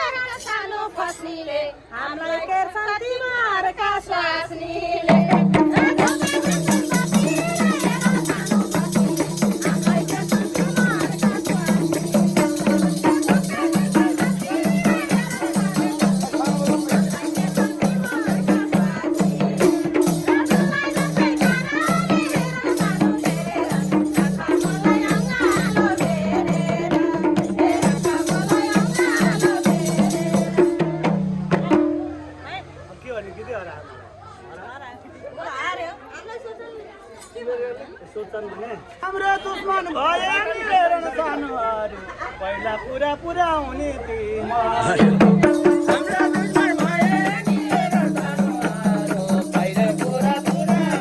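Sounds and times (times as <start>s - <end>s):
fast drum rhythm: 5.1s - 32.2s, 45.0s - 51.0s.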